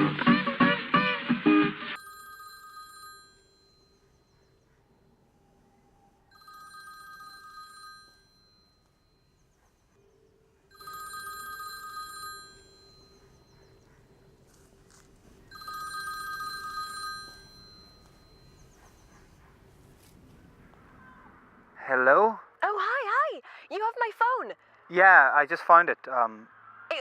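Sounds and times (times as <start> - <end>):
mobile phone ringing: 2.0 - 4.1, 6.3 - 9.3, 10.7 - 13.6, 14.5 - 18.7.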